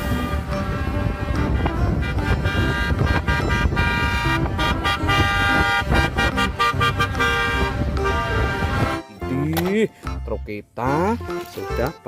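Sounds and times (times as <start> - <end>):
multi-tone vehicle horn blasts: 0.0 - 9.2.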